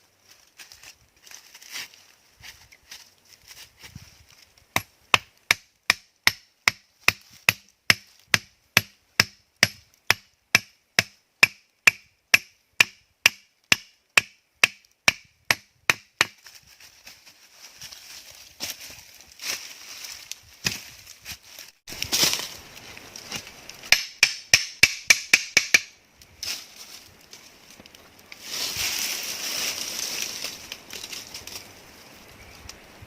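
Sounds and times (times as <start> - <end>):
tool striking wood: 4.8 - 16.4, 23.8 - 26.0.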